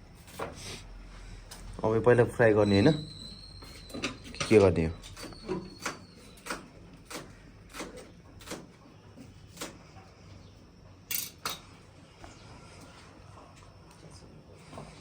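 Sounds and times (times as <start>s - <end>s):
kitchen utensils clinking: 11.1s - 11.6s.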